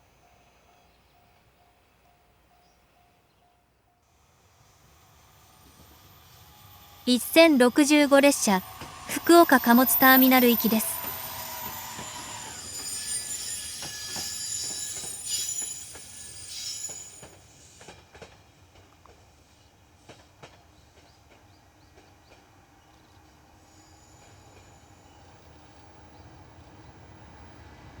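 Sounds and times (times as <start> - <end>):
freight train passing: 0.0 - 28.0
high wheel squeal: 4.6 - 17.8
wheels clicking over rail joints: 8.1 - 19.2.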